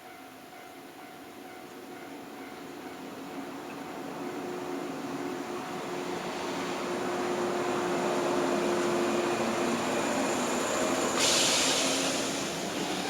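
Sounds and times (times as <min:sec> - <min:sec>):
electric train rumbling past: 0:00.0 - 0:13.0
sudden hiss: 0:11.0 - 0:13.0.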